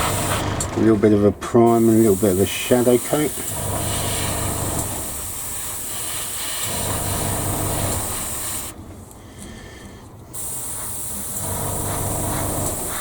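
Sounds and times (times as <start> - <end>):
airbrush spraying hiss: 0.0 - 0.4, 1.7 - 8.8, 10.4 - 13.0
air compressor hum: 0.0 - 0.9, 1.7 - 8.8, 10.3 - 13.0.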